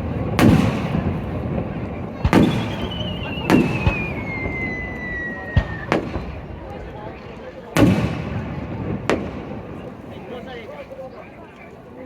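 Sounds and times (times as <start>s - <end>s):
fireworks booming: 0.0s - 10.5s
crowd noise: 0.0s - 12.0s
descending firework whistle: 2.2s - 6.5s.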